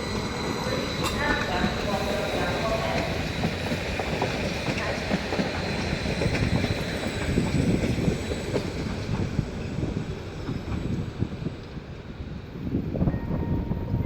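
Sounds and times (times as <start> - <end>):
train wheels rumbling: 0.0 - 14.0
rail clicks: 0.1 - 14.0.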